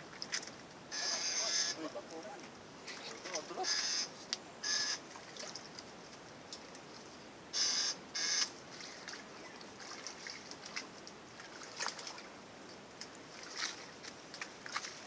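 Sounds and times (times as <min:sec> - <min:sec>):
small splashes and clicks: 0:00.0 - 0:00.8, 0:05.1 - 0:07.1, 0:08.8 - 0:12.3, 0:12.9 - 0:15.0
stream water trickling: 0:00.0 - 0:15.0.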